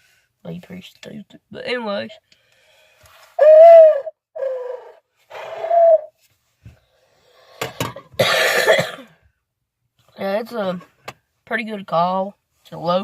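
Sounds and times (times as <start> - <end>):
owl call hoots: 3.4 - 6.1
person coughing: 7.9 - 9.2.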